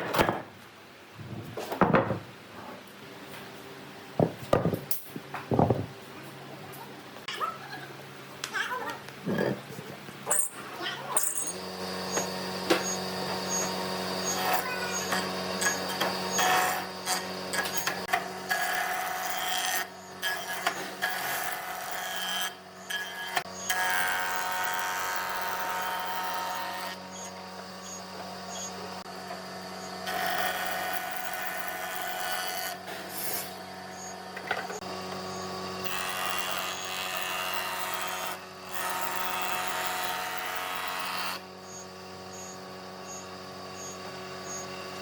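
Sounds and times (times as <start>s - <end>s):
woodworking machine humming: 11.4s - 45.0s
tool cutting and scraping wood: 11.5s - 44.7s.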